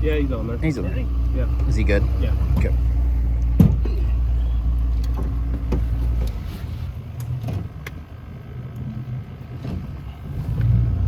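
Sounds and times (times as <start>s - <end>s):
boat motor idling: 0.0s - 10.8s.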